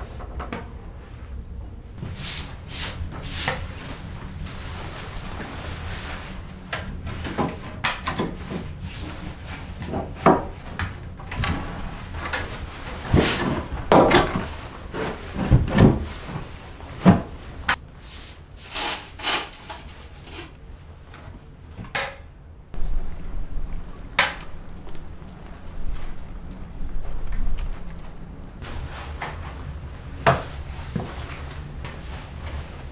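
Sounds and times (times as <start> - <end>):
wooden knocks and thuds: 12.9 - 17.6.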